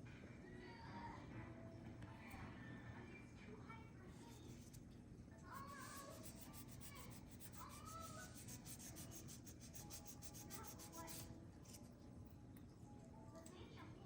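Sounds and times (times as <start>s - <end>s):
faint rapid rubbing strokes: 5.5s - 11.9s.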